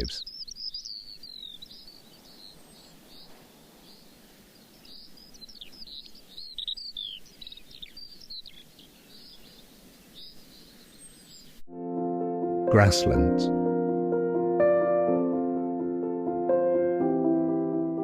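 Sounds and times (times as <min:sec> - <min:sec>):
birds chirping: 0:00.0 - 0:11.6
outdoor background hiss: 0:00.0 - 0:11.6.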